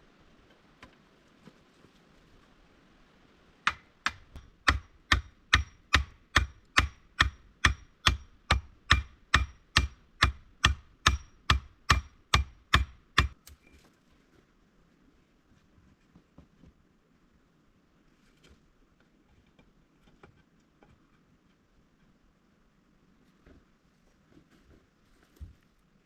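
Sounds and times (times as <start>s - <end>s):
hand tool striking wood: 3.7s - 13.4s.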